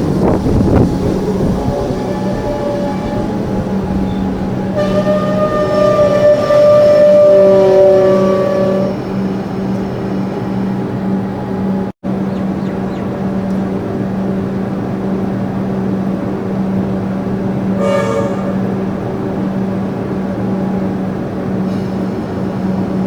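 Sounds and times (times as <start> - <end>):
train horn: 0.0 - 11.9, 17.6 - 20.8
train running hum: 0.0 - 23.0.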